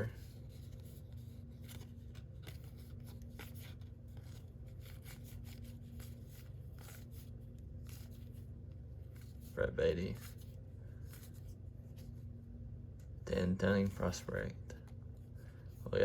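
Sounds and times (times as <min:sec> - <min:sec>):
cards clicking and rustling: 0:00.0 - 0:08.5
steady low hum: 0:00.0 - 0:16.0.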